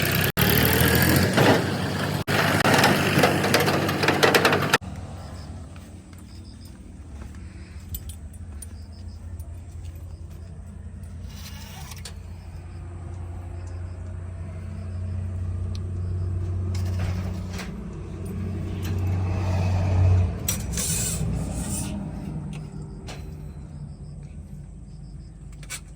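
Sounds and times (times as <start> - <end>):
rushing scraping noises: 0.0 - 4.8, 18.6 - 23.6
heavy diesel engine running: 0.0 - 24.8.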